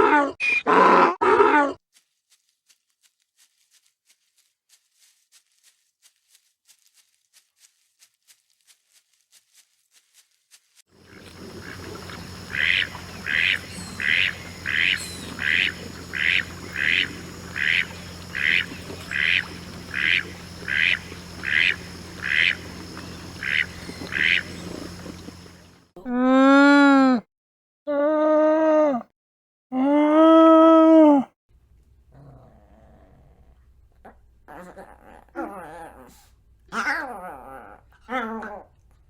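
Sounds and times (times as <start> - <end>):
faint regular ticks: 2.0 - 25.8
low steady hum: 11.0 - 25.9
duck quacking: 11.1 - 25.5.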